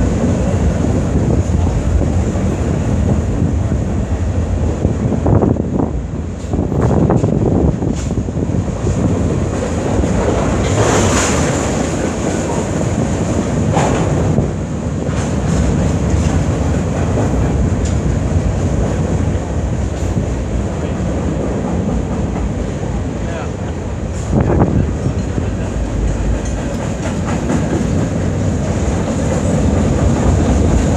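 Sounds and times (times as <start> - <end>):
freight train wheels rumbling: 0.0 - 30.9
wind buffeting microphone: 0.0 - 30.9
train wheels clacking: 6.3 - 30.9.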